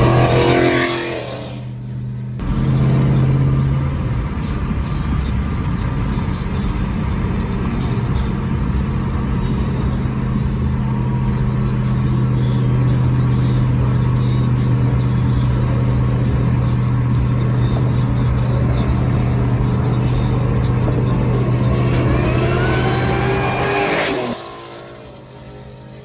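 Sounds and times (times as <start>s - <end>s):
car engine droning: 0.0s - 26.0s
music playing: 16.2s - 26.0s.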